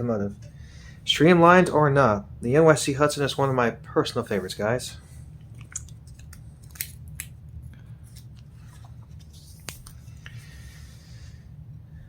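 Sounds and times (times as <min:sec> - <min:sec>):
paper pages turning: 0:08.0 - 0:10.2.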